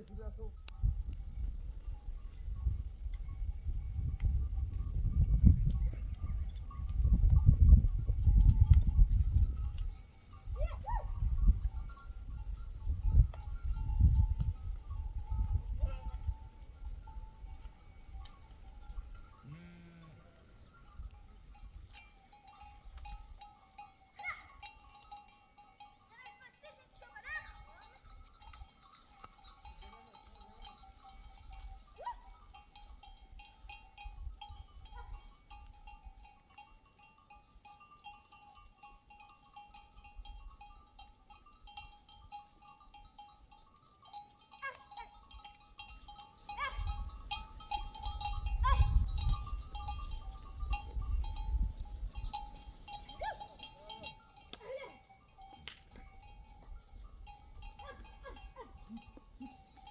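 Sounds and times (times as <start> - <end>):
animal bells clinking: 0.0 - 59.9
sheep and goats bleating: 19.4 - 20.6, 57.6 - 59.9.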